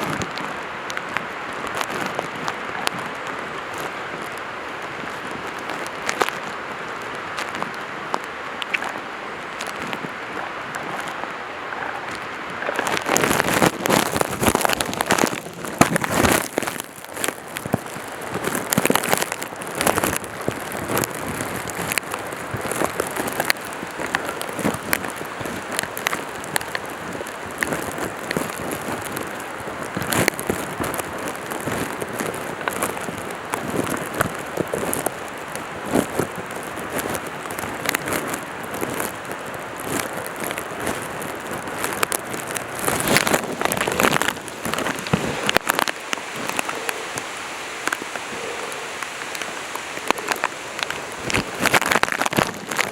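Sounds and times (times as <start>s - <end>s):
gear and clothing rustling: 0.0s - 52.9s
boots crunching on stone: 10.7s - 17.9s, 40.8s - 46.8s, 49.4s - 52.9s.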